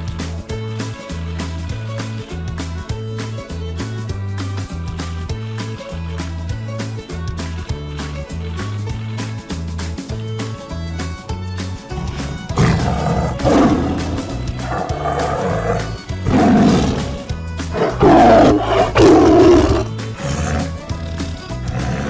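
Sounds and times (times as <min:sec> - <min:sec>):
background music: 0:00.0 - 0:22.0
tiger roaring: 0:11.9 - 0:22.0.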